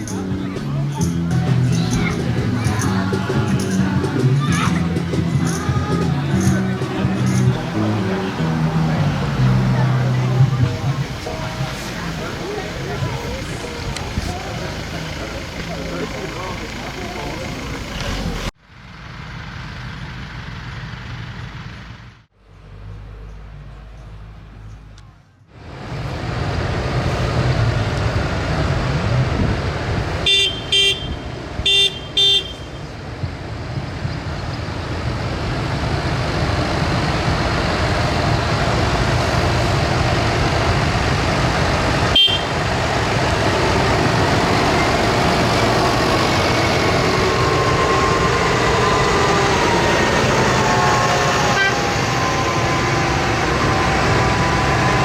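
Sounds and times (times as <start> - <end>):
tractor engines running: 0.0 - 55.0
vehicle horn toots: 30.2 - 32.9, 42.1 - 42.7, 51.4 - 52.0.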